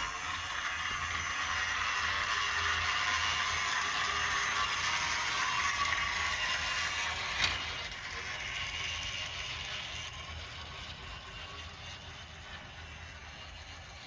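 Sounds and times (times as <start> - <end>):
toy train motor whirring: 0.0 - 14.0
sharp click of wheels: 5.5 - 8.2.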